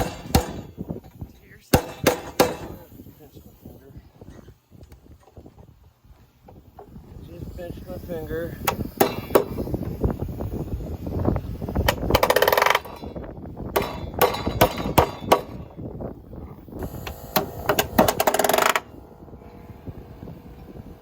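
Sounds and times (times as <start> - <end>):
nailer single sharp strikes: 0.0 - 0.8, 1.7 - 2.8
palm nailer rapid hammering: 0.0 - 0.8, 1.7 - 2.8, 8.6 - 9.6, 11.8 - 15.8, 16.8 - 18.9.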